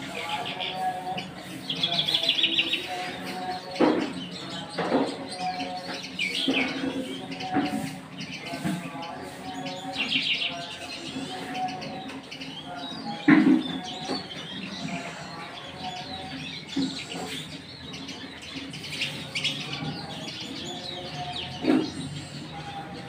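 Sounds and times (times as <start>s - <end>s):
songbird chirping: 0.0s - 23.0s.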